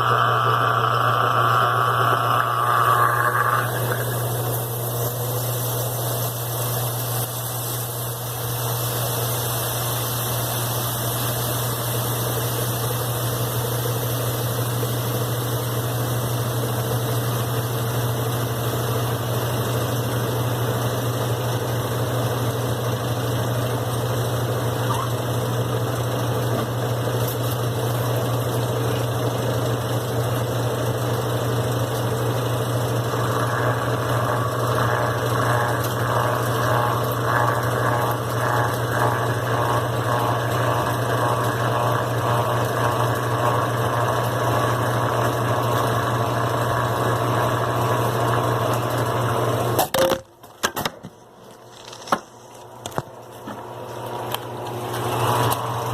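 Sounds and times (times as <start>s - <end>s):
washing machine motor hum: 0.0s - 55.9s.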